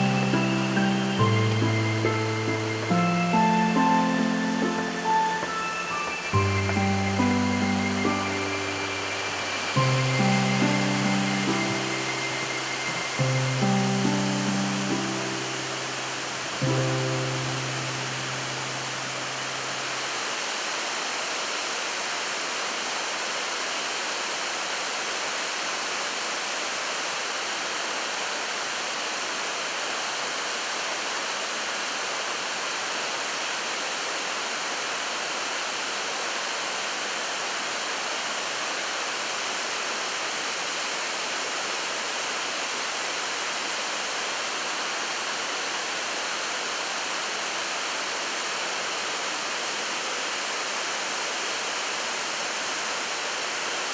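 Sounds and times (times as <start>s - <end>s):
waterfall rushing: 0.0s - 30.6s.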